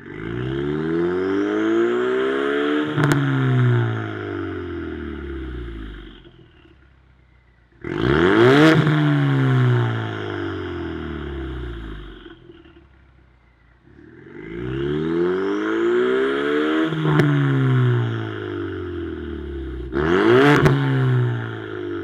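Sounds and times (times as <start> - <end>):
car engine revving: 0.0 - 7.0, 7.7 - 22.0
exhaust crack: 2.8 - 13.2, 16.9 - 22.0.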